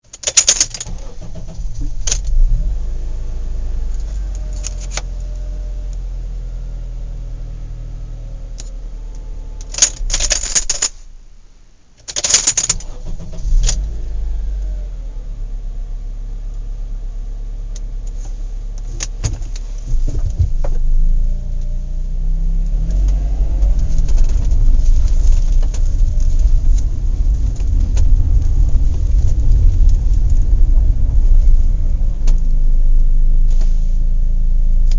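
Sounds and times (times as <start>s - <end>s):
metallic clanks and clicks: 0.0s - 2.4s, 8.6s - 11.0s, 12.0s - 13.9s
vehicle engine rumbling: 0.0s - 34.9s.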